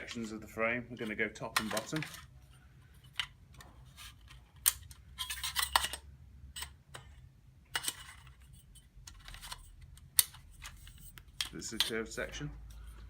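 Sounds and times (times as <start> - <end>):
frame tubes clicking and clattering: 0.0 - 2.3.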